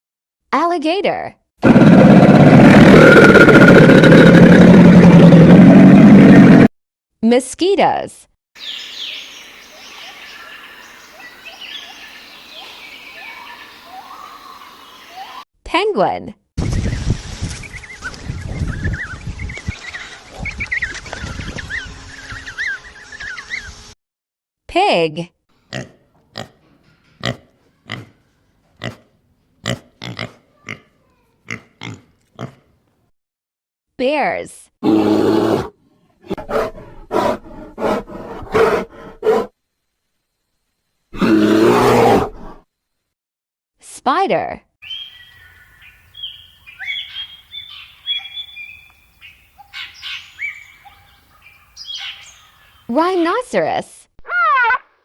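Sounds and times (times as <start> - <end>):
birds chirping: 8.6 - 15.4, 16.6 - 24.0, 44.8 - 53.4
pig grunting: 27.2 - 28.2, 28.8 - 32.7.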